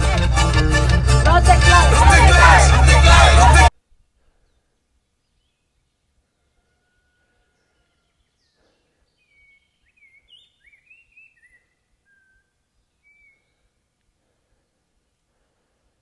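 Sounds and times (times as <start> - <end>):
faint bird chirps: 4.3 - 13.9.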